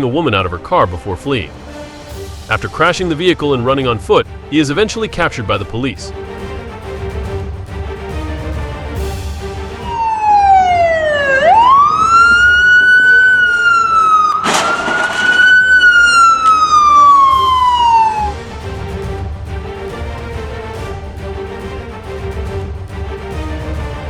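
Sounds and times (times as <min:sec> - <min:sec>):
emergency siren wailing: 0:09.8 - 0:18.6.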